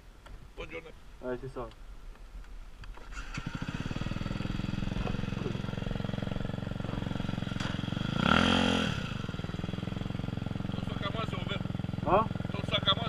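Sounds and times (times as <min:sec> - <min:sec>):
motorcycle engine revving: 0:02.9 - 0:13.0
motorcycle engine idling: 0:03.0 - 0:13.0.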